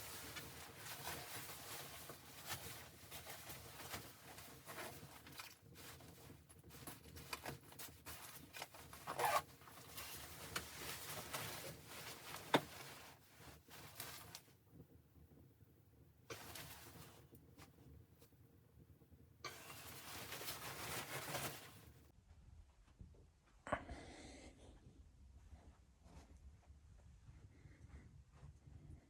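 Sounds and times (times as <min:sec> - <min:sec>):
scratchy rustling and scraping: 0:00.0 - 0:14.5, 0:16.3 - 0:17.7, 0:19.5 - 0:22.1.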